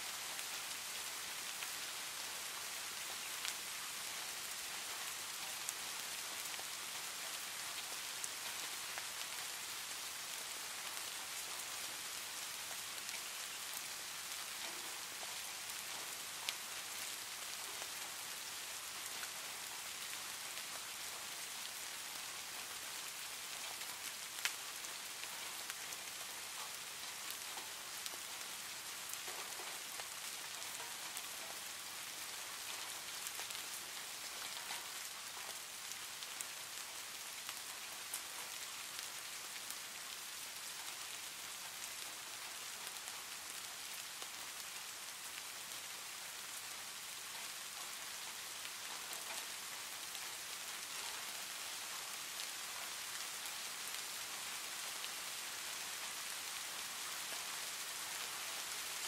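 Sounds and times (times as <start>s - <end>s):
steady rain pattering: 0.0s - 59.0s
sharp raindrop ticks: 23.6s - 36.8s.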